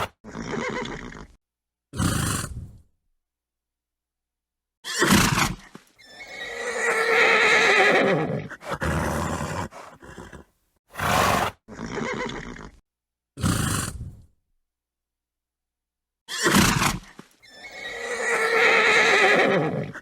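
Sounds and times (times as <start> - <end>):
horse neighing: 0.0 - 1.4, 6.0 - 12.8, 16.3 - 20.0
horse blowing and snorting: 0.0 - 2.9, 4.8 - 12.8, 13.4 - 14.3, 16.3 - 20.0.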